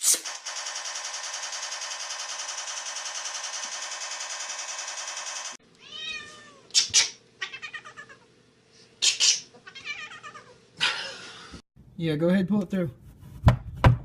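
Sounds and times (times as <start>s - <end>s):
cat meowing: 5.8s - 6.7s, 7.4s - 8.2s, 9.6s - 10.6s.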